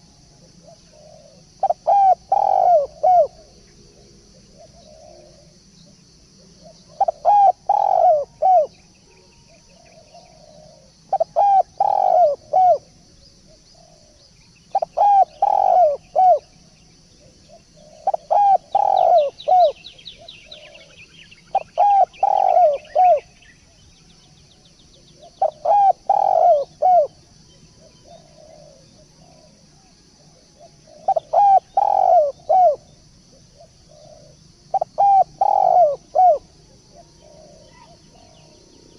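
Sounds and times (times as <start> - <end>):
turtledove cooing: 0.6 - 3.4, 6.9 - 8.7, 10.2 - 12.8, 14.7 - 16.4, 17.8 - 19.8, 21.5 - 23.2, 25.2 - 27.1, 30.8 - 32.9, 33.9 - 38.4.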